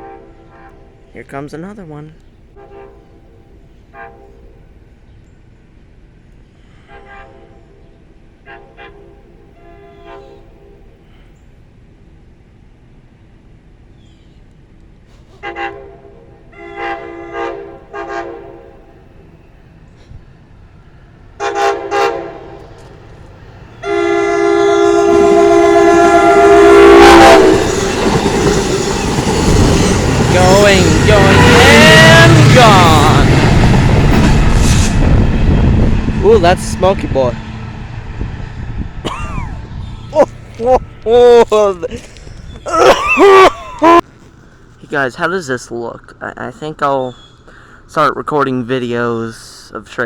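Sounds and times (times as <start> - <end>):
locomotive air horn blasts: 0.0 - 1.0, 2.6 - 4.7, 6.6 - 7.8, 8.4 - 11.1, 15.3 - 19.0, 21.4 - 22.8, 23.8 - 28.2, 30.4 - 32.6
train rumbling: 0.0 - 45.3.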